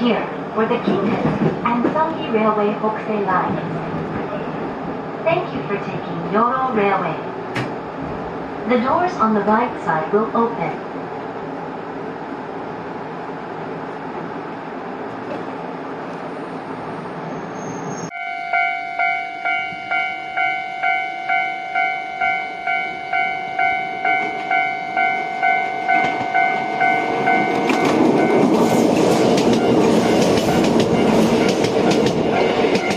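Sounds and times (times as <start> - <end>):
train running noise: 0.0 - 32.9
level-crossing alarm ringing: 18.1 - 32.9
train wheels clacking over rail joints: 27.5 - 32.9.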